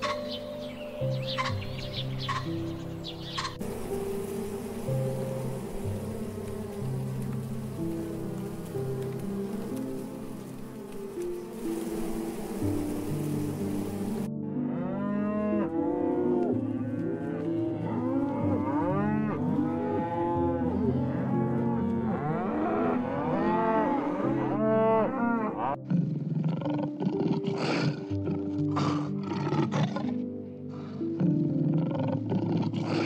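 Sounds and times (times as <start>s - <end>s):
soft piano music: 0.0s - 25.9s, 26.9s - 33.0s
bison lowing calls: 18.5s - 33.0s.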